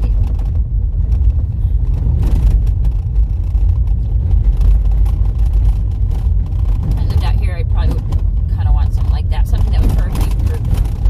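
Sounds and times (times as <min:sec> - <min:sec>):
small knocks and rattles: 0:00.0 - 0:07.2, 0:09.8 - 0:11.0
car rumbling on dirt road: 0:00.0 - 0:11.0.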